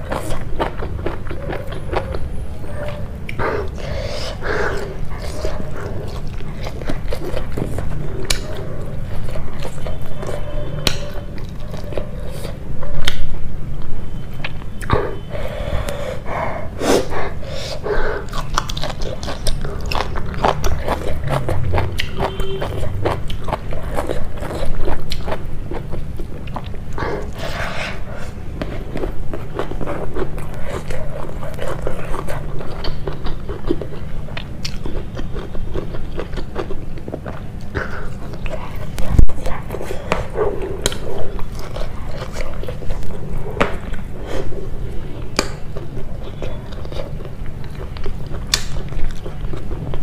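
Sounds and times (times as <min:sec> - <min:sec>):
close chewing with mouth clicks: 0:00.0 - 0:50.0.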